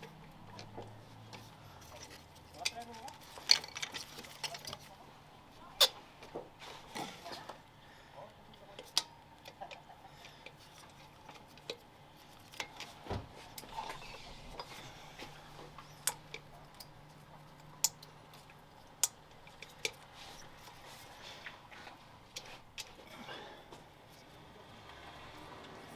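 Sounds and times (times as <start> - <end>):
tools clicking and tapping: 0.0 - 4.8, 8.8 - 14.0, 15.6 - 20.8.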